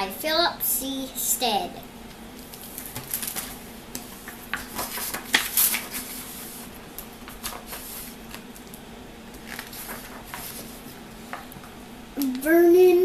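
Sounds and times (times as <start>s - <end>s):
faint room hum: 0.0s - 13.0s
book pages rustling: 2.4s - 8.6s, 9.4s - 11.5s.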